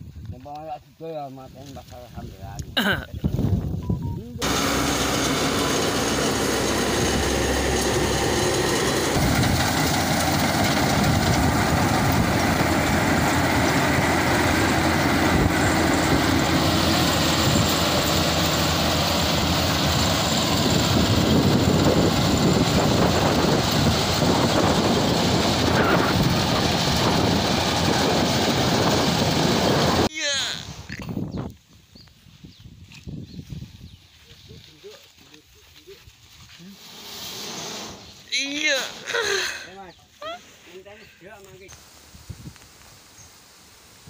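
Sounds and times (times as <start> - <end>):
combine harvester running: 4.4 - 30.7.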